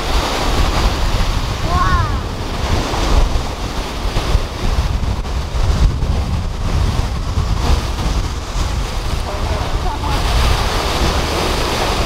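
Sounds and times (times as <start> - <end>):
sea waves washing onto beach: 0.0 - 12.0
wind buffeting microphone: 0.0 - 12.0.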